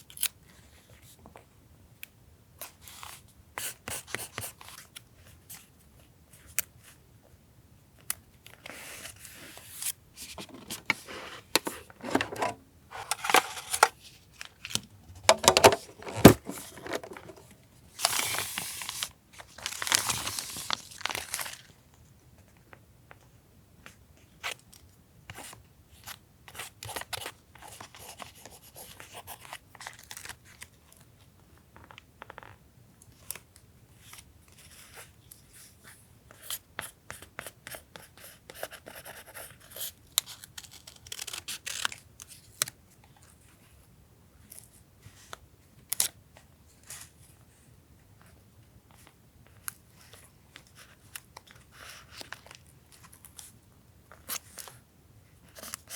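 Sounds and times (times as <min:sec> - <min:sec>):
paper rustling: 0:09.8 - 0:21.7
scissors snipping paper: 0:40.2 - 0:42.0.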